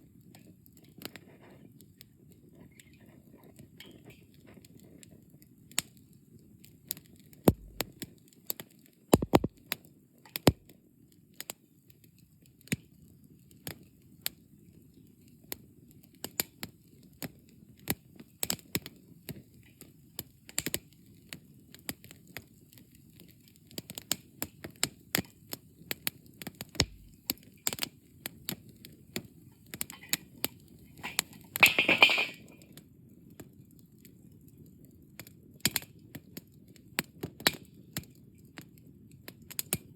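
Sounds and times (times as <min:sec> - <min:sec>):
low rumble of flame: 0:03.6 - 0:08.1, 0:19.5 - 0:31.4
campfire crackling and popping: 0:05.5 - 0:39.9.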